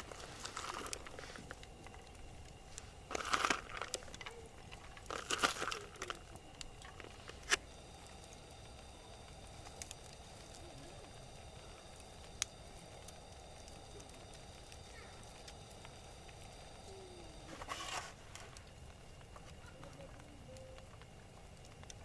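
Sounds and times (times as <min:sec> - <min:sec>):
crinkling rustling handling noise: 0:00.0 - 0:08.3, 0:16.9 - 0:20.8.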